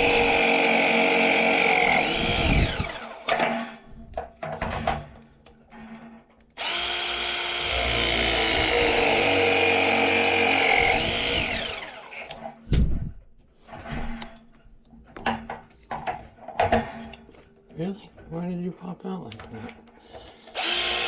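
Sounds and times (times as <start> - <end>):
press tool motor whine: 0.0 - 3.3, 6.6 - 12.4, 20.5 - 21.0.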